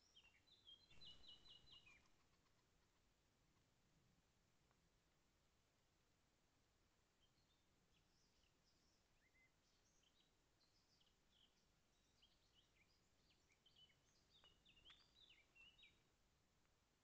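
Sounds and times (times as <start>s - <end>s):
songbird chirps and whistles: 0.0s - 2.3s, 7.3s - 16.0s.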